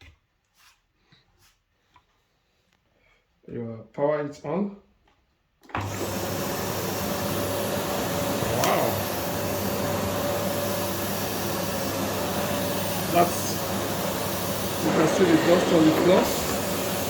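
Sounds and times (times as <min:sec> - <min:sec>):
vacuum cleaner running: 0:05.7 - 0:17.0.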